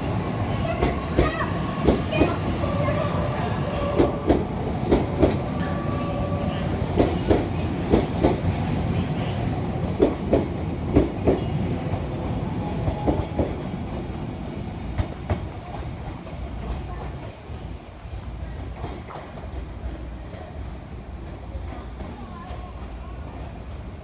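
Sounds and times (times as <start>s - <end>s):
train wheels clacking on rail joints: 0.0s - 3.0s, 3.7s - 17.4s
low train rumble: 0.0s - 24.0s.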